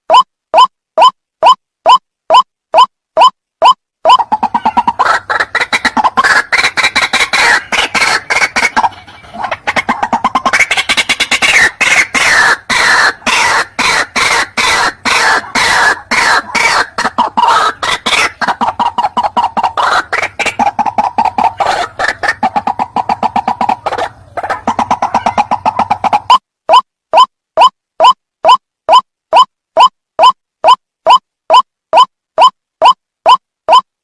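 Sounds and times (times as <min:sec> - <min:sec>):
waterhen harsh repeated calls: 0:00.1 - 0:33.8.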